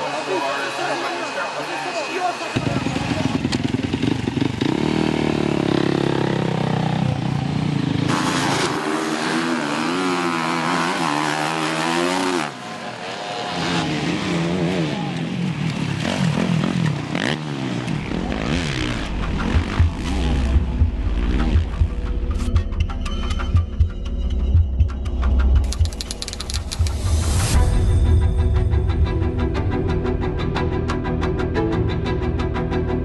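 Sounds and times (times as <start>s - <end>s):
motocross bike engines revving: 0.0s - 22.0s.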